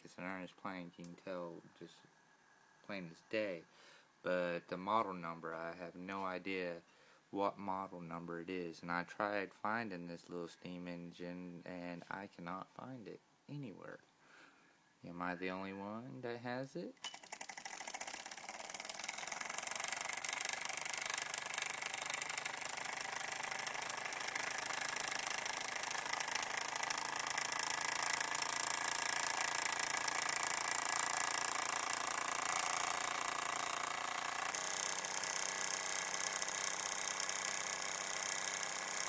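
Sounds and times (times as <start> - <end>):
toy steam engine running: 17.0 - 39.0.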